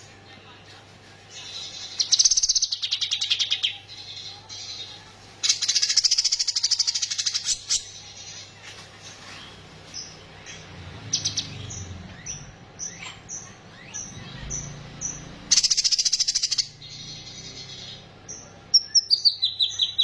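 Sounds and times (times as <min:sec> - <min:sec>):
bird chirps: 0:05.4 - 0:20.0.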